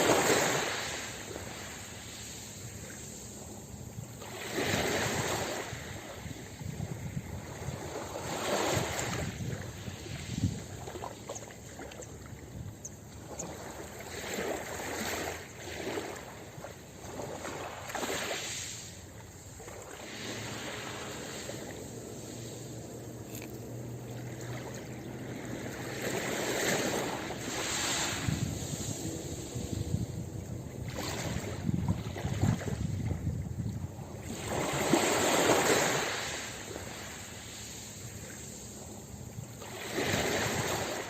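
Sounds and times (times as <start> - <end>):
waves breaking on a beach: 0.0 - 41.0.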